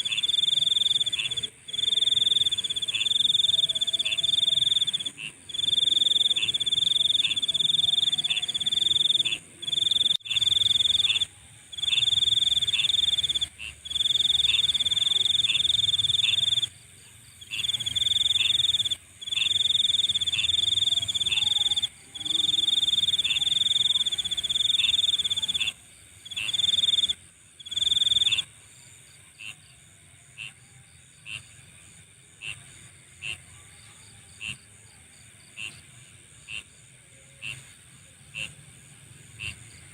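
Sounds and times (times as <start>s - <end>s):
high-pitched insect drone: 0.0s - 16.7s
insect chirps: 0.0s - 39.9s.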